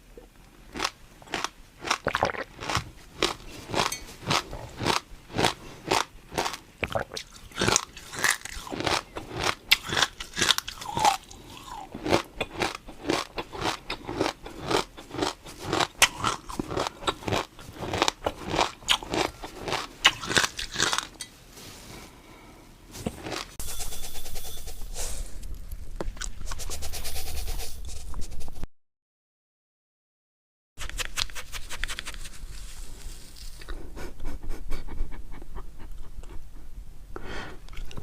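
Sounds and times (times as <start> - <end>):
crunchy food being chewed: 0.7 - 21.2, 23.0 - 23.6.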